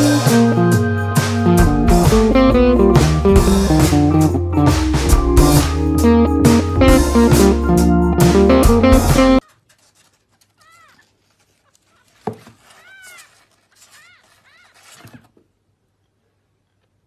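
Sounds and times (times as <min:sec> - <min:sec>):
guitar music: 0:00.0 - 0:09.4.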